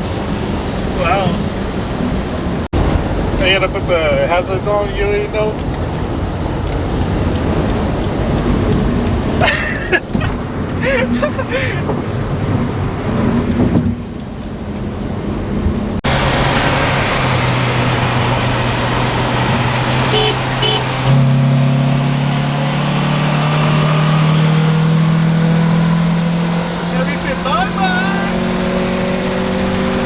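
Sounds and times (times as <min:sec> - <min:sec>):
road noise: 0:00.0 - 0:30.0
car engine accelerating: 0:11.4 - 0:30.0.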